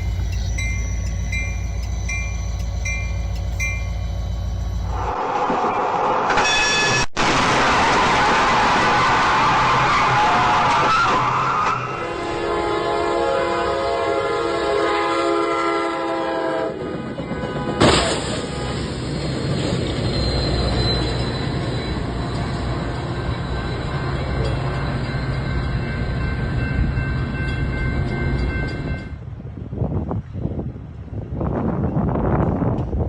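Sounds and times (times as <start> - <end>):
train running on rails: 0.0 - 33.0
train horn: 4.9 - 7.1, 9.7 - 19.0.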